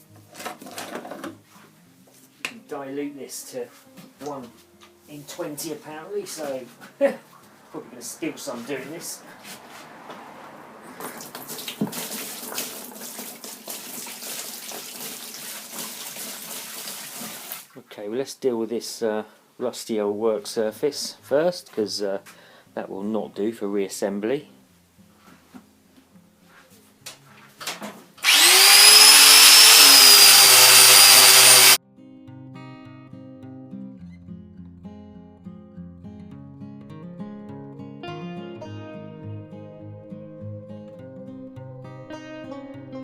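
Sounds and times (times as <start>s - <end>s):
water splashing into a container: 11.0s - 17.7s
electric power tool whining: 28.2s - 31.8s.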